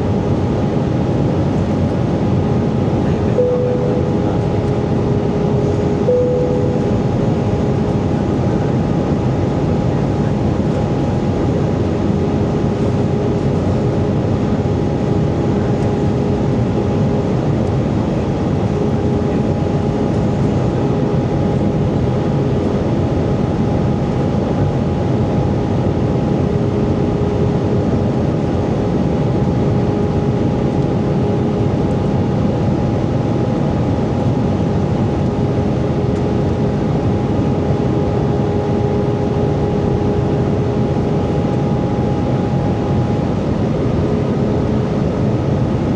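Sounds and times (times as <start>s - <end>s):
airplane cabin rumble: 0.0s - 45.9s
low tone: 3.1s - 8.8s.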